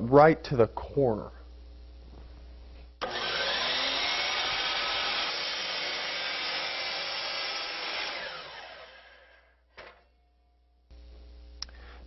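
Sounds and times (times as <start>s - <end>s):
power saw cutting wood: 3.0s - 9.5s.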